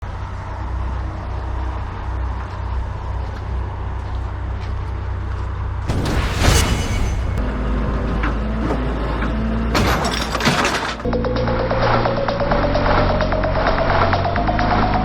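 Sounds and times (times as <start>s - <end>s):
diesel truck engine rumbling: 0.0s - 14.6s
air hissing burst: 5.9s - 7.4s.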